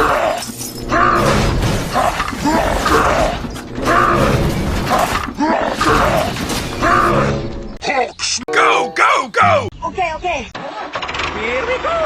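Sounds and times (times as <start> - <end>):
mechanical creaking and grinding: 0.0 - 7.8.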